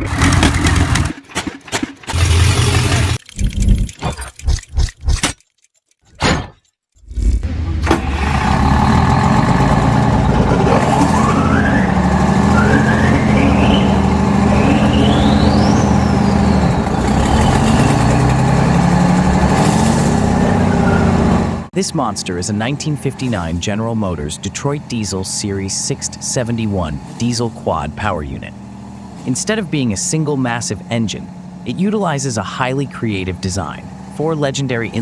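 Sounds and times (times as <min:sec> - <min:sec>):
diesel engines starting and running: 0:00.0 - 0:04.6, 0:07.3 - 0:35.0
engine whine rising: 0:02.2 - 0:04.0, 0:07.2 - 0:35.0.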